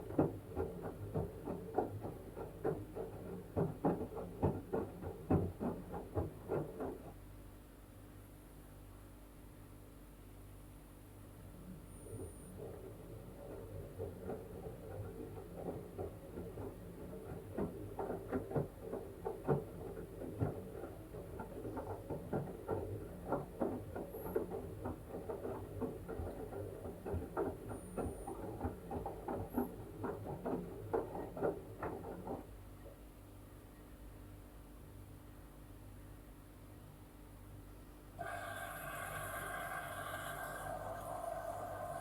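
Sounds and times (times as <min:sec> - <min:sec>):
washing machine low hum: 0:00.0 - 0:09.1, 0:10.1 - 0:42.0
washing machine splashing and sloshing: 0:12.5 - 0:32.5.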